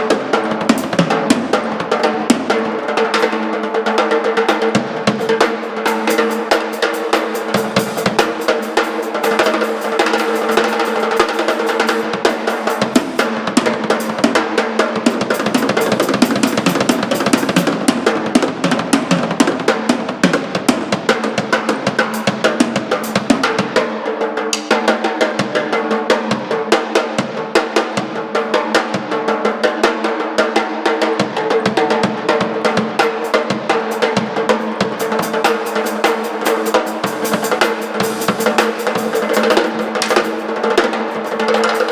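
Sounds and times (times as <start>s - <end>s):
rock band playing: 4.6s - 23.8s, 31.6s - 41.9s.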